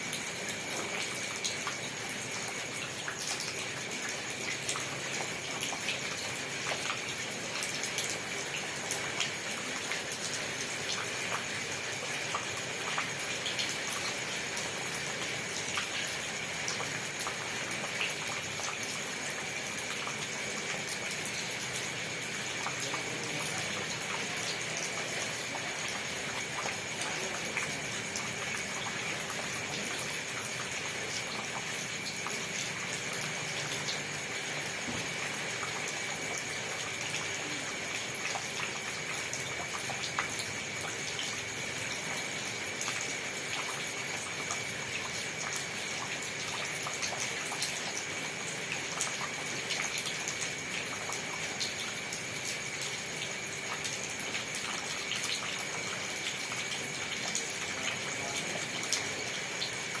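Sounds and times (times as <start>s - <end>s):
steady rain: 0.0s - 60.0s.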